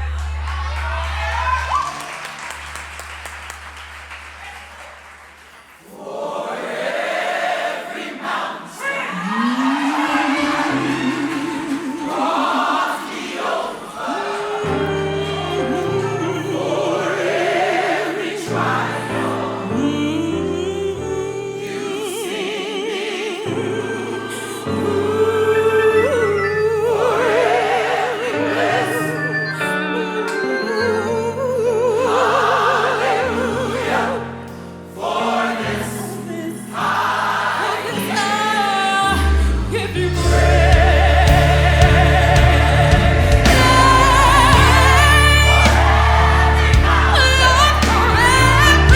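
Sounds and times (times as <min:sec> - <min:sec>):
gospel choir singing: 0:05.3 - 0:48.9
low band accompaniment: 0:40.0 - 0:48.9.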